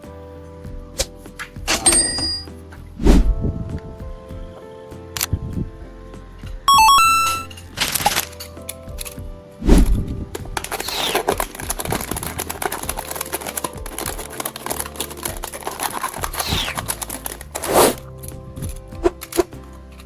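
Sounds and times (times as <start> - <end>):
background music: 0.0 - 20.0
crinkling and scraping handling: 6.4 - 20.0.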